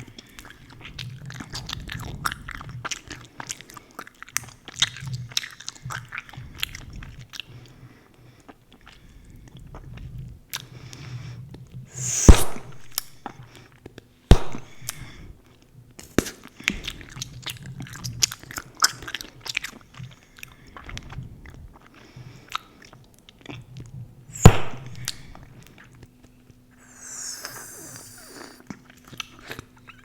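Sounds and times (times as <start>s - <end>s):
bubble-gum bubbles popping: 26.8s - 28.6s
gum chewing: 26.8s - 28.6s.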